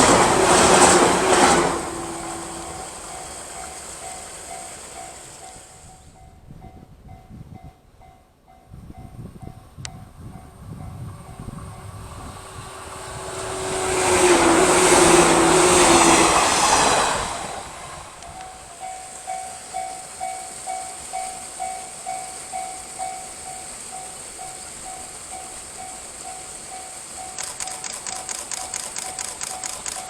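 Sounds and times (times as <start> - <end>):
train passing close by: 0.0 - 30.0
level crossing warning bell: 18.2 - 27.4.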